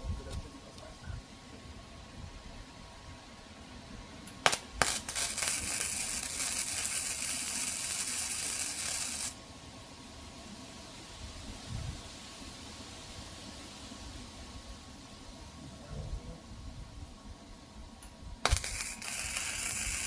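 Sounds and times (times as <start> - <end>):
welding arc crackling hiss: 4.2 - 9.4, 18.0 - 20.0
arc welder striking clicks: 4.3 - 9.3, 18.0 - 20.0.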